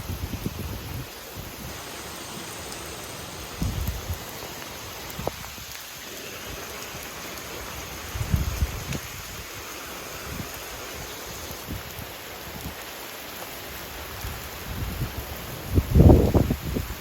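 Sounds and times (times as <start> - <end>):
low rumbling gusts: 0.0 - 5.8
heavy rain falling: 0.0 - 17.0.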